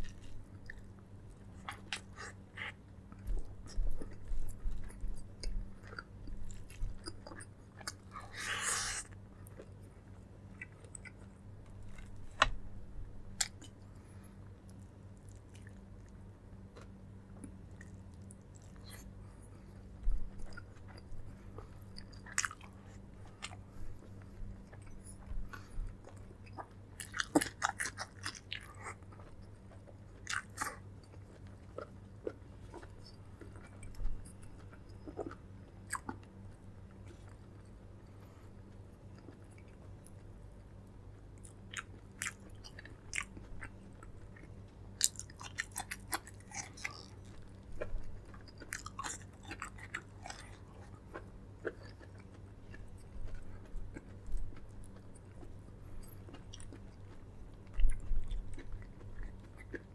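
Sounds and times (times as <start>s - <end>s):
person chewing and biting food: 0.0s - 0.9s, 13.3s - 40.8s, 41.4s - 59.9s
steady low hum: 0.0s - 59.9s.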